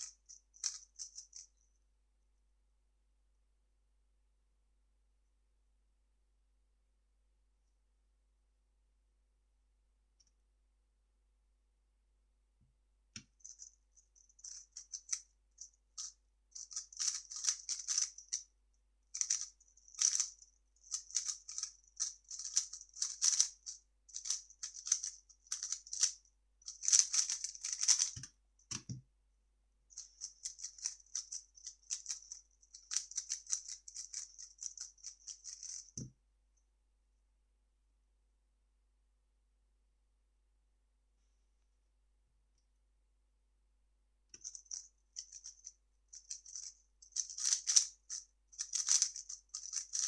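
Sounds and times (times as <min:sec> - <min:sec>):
puzzle cube clicking: 0:17.0 - 0:18.1, 0:20.9 - 0:23.5, 0:26.8 - 0:28.9, 0:47.2 - 0:47.9, 0:48.6 - 0:50.0.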